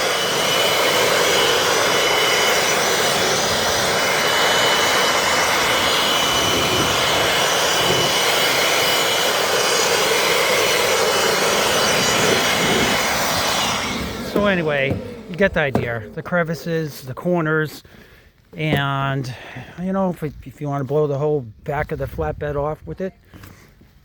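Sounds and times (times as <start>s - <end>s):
leaf blower running: 0.0s - 16.6s.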